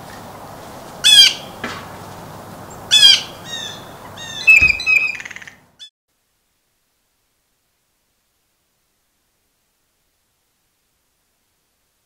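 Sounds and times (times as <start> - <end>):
low outdoor hiss: 0.0 - 12.0
harsh bird calls: 1.0 - 1.6, 2.6 - 5.9
bird chirps: 2.7 - 5.9.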